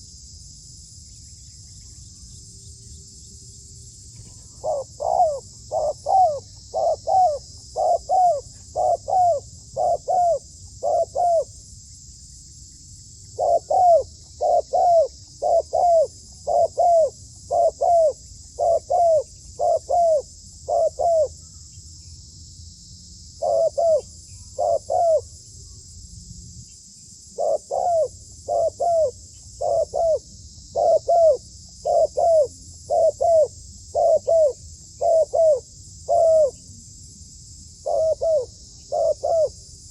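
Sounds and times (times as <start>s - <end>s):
high insect buzz: 0.0s - 39.9s
dove cooing: 4.2s - 11.5s, 13.4s - 21.4s, 23.4s - 25.3s, 27.3s - 36.6s, 37.8s - 39.6s.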